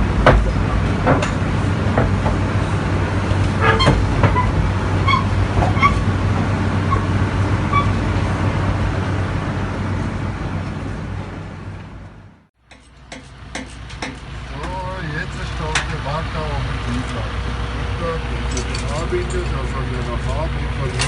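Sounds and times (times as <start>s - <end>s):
diesel engine running: 0.0s - 21.0s
short squeaks and clicks: 3.6s - 6.1s, 6.9s - 7.1s, 7.7s - 8.0s.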